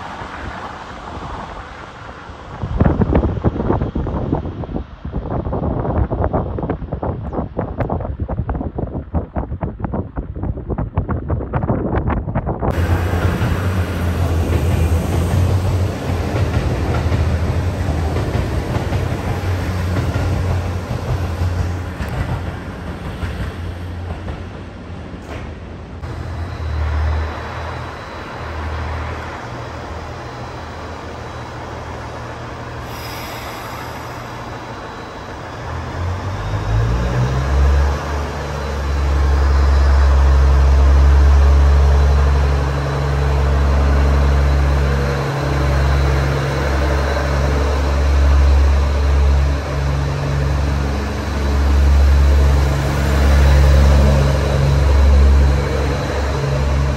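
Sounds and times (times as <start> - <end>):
train accelerating rumble: 0.0 - 56.9
diesel generator engine drone: 26.0 - 56.9.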